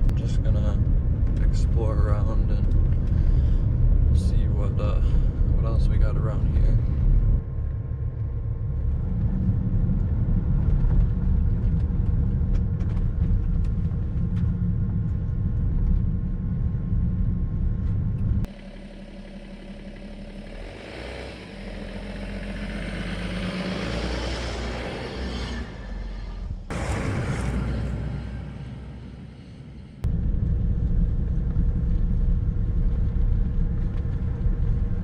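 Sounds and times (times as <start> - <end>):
diesel engine rumble: 0.0 - 35.0
rushing noise: 18.4 - 31.8.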